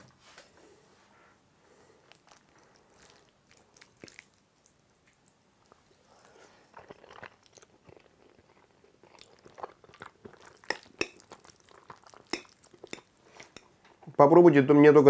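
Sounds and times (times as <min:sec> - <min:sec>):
person chewing food: 0:01.9 - 0:13.8.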